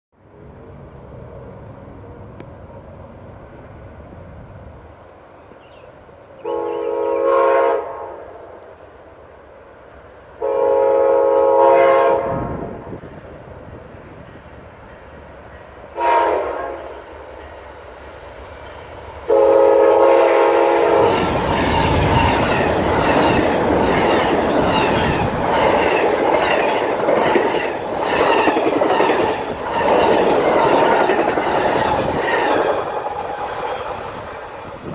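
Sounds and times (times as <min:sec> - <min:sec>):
locomotive horn blast: 0:06.4 - 0:08.5, 0:10.4 - 0:12.7, 0:16.0 - 0:17.0, 0:19.3 - 0:23.7
train wheels clicking over rail joints: 0:20.1 - 0:34.9.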